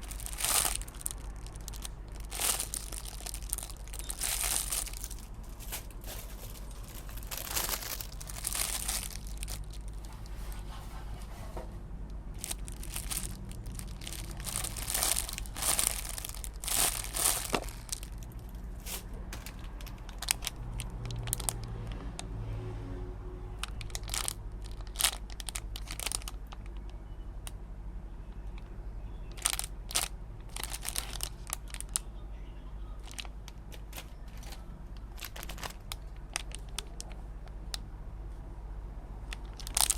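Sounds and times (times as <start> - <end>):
plastic packaging crinkling: 0.0 - 10.6, 12.3 - 21.9, 23.6 - 27.0, 29.3 - 32.0, 33.0 - 37.2, 39.3 - 39.9.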